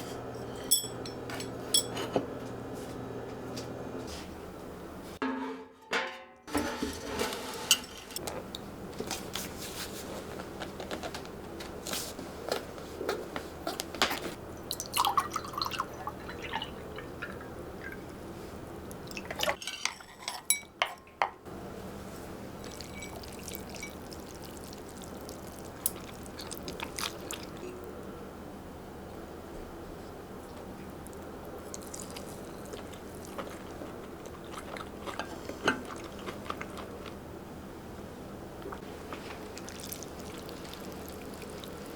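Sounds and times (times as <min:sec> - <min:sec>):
dishes and glassware clinking: 0:00.0 - 0:02.3, 0:05.2 - 0:08.2, 0:19.4 - 0:21.4, 0:22.6 - 0:24.2
liquid pouring and dripping: 0:14.6 - 0:18.1, 0:22.6 - 0:27.6, 0:39.2 - 0:41.9.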